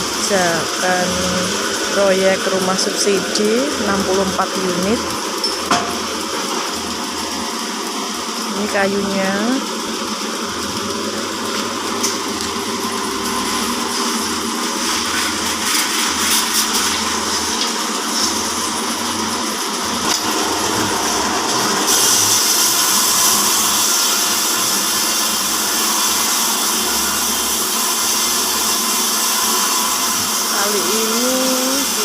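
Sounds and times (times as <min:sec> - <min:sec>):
band sawmill running: 0:00.0 - 0:32.0.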